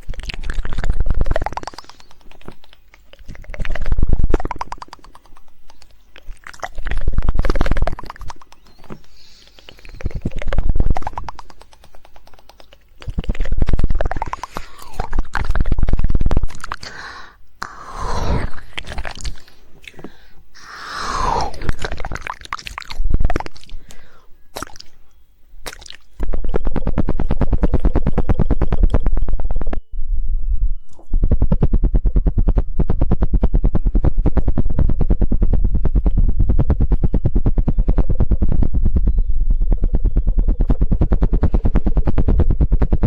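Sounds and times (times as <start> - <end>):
tongue clicking: 0.0 - 26.3
wet mouth noises: 0.0 - 29.3.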